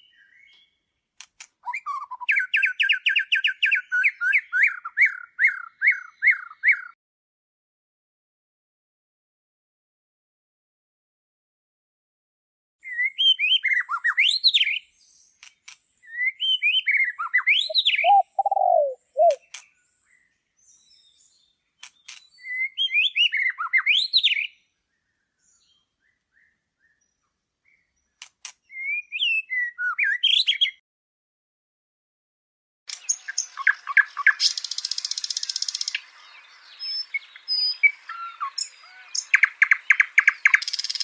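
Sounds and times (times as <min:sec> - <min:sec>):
songbird warbling: 0:16.0 - 0:19.6, 0:32.9 - 0:41.0
low falling bird call: 0:17.4 - 0:19.6.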